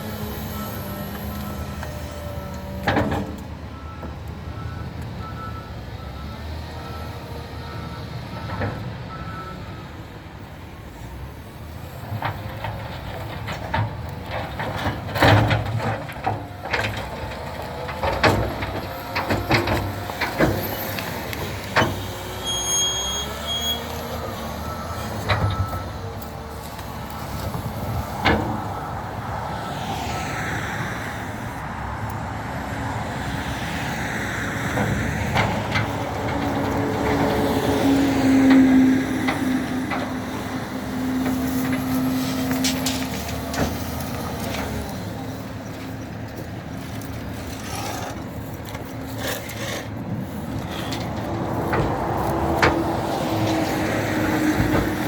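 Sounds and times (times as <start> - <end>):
front loader engine running: 0.0 - 55.0
reversing alarm beeping: 22.4 - 26.0
logs knocking and clanking: 50.6 - 53.6.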